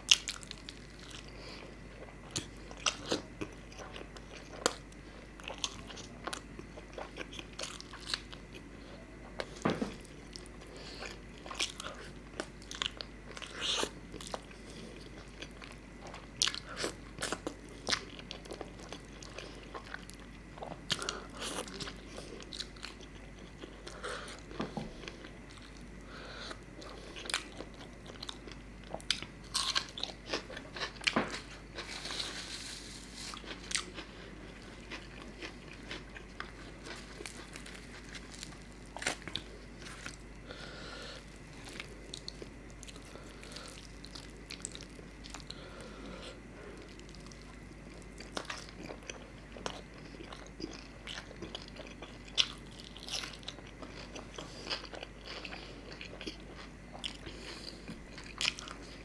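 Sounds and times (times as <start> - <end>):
chewing and biting: 33.3 - 40.4, 46.7 - 59.0.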